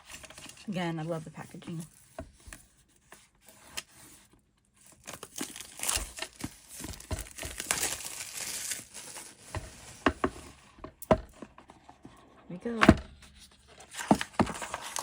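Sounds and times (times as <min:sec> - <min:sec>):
packaging crinkling: 0:04.8 - 0:10.0, 0:13.8 - 0:15.0.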